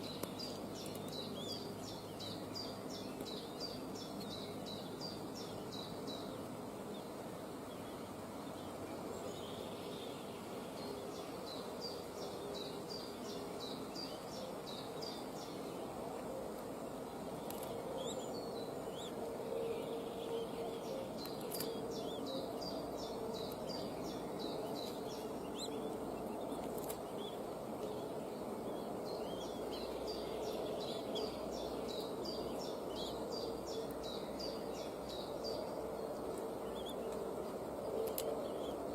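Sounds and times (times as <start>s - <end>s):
background hiss: 0.0s - 38.9s
faint hum: 0.0s - 38.9s
bird chirping: 17.4s - 37.2s.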